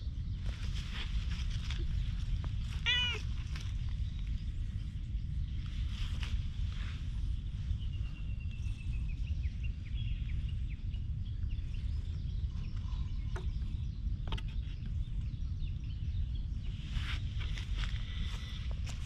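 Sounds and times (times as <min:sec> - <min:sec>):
low microphone rumble: 0:00.0 - 0:19.0
bird chirping: 0:07.5 - 0:17.5.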